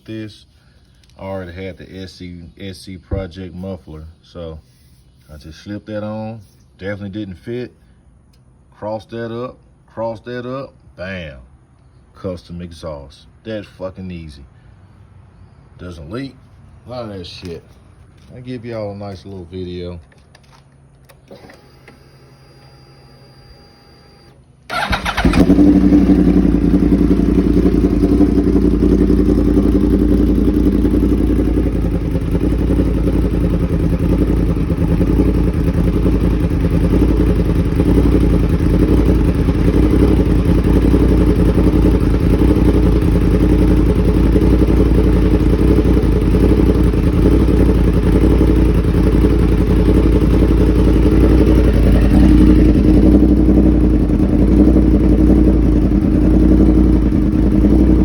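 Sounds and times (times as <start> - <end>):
motorcycle engine idling: 24.7 - 58.0.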